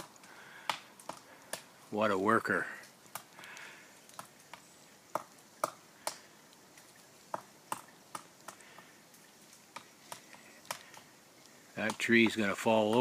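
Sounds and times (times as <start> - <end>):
woodpecker knocking on wood: 4.2 - 6.3, 7.3 - 8.9, 11.8 - 13.0.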